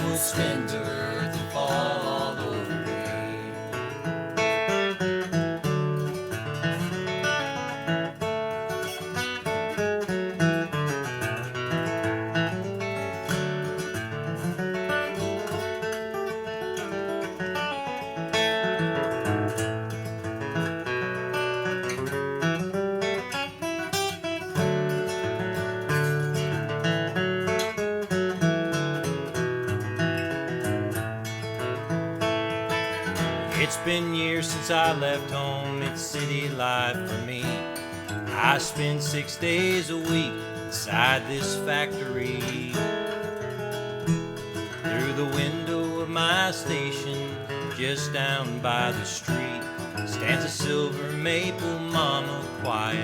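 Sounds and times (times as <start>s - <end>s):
picked string melody: 0.0s - 4.9s
acoustic guitar picking: 0.0s - 53.0s.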